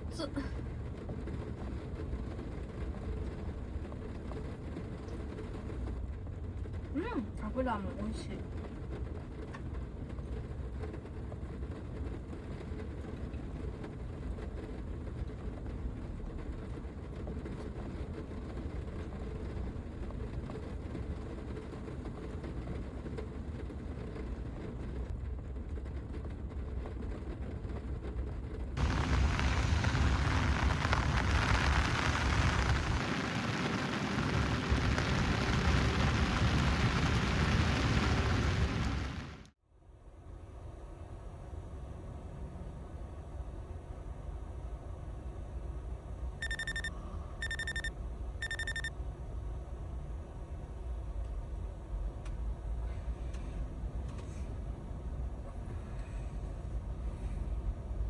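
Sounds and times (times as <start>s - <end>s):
heavy rain drumming on roof: 0.0s - 39.5s
rush of downpour: 0.0s - 39.5s.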